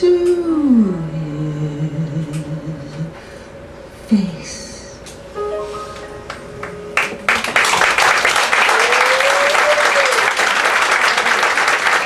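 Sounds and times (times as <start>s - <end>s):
audience applause: 7.0s - 12.0s.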